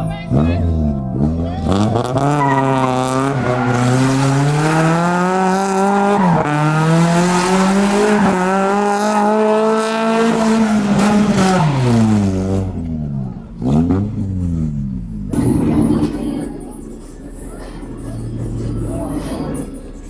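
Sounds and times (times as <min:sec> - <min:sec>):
vehicle engine revving: 0:00.0 - 0:20.0.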